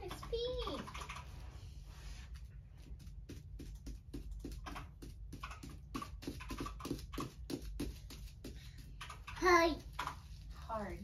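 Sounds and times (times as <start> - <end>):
rapid small clicks: 0.0 - 1.5, 3.3 - 10.5.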